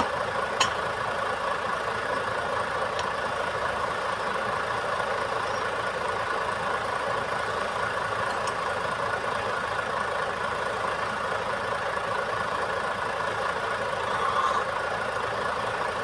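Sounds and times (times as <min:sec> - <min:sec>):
truck diesel engine running: 0:00.0 - 0:16.0.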